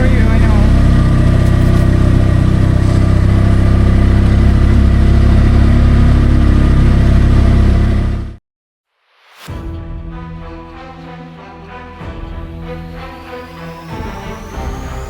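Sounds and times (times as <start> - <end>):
small engine running hard: 0.0 - 8.4.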